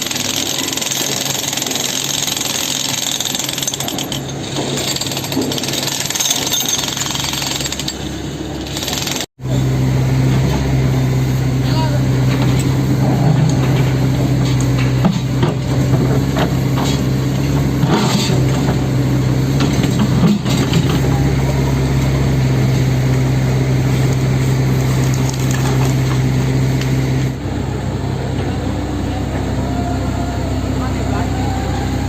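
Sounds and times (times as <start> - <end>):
machine drone: 7.9 - 32.0.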